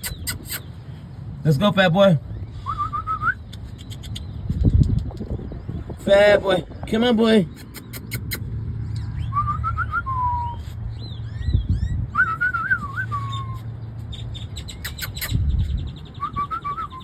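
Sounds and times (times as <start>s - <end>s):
person whistling a call: 2.6s - 3.4s, 9.3s - 10.7s, 12.2s - 13.6s, 16.2s - 17.0s.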